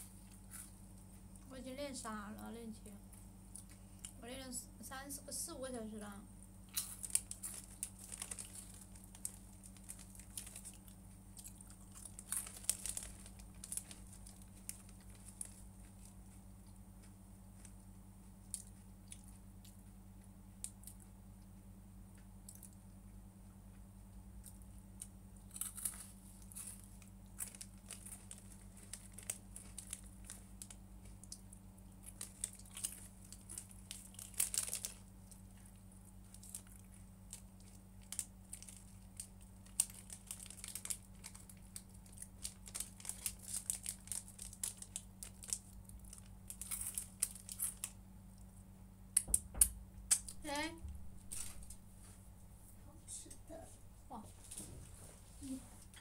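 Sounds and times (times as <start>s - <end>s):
low electrical hum: 0.0s - 56.0s
chewing: 6.7s - 17.8s, 18.4s - 21.2s, 25.4s - 48.5s
food packaging crinkling: 6.7s - 17.8s, 25.4s - 48.5s, 51.2s - 51.8s.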